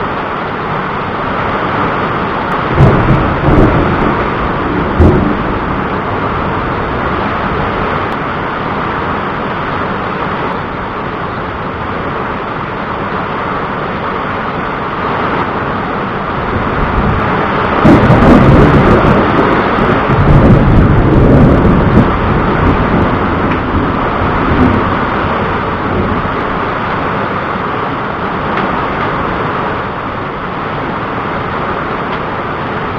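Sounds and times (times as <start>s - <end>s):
steady rain: 0.0s - 32.9s
rolling thunder: 2.4s - 12.8s, 14.8s - 30.8s.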